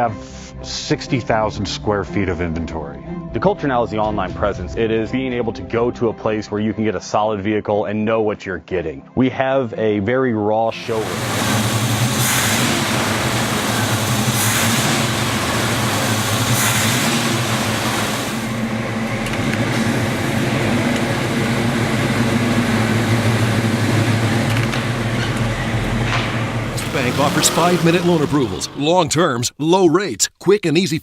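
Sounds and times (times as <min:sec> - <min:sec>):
truck engine running: 0:10.8 - 0:29.2
rushes of hiss: 0:10.9 - 0:18.5.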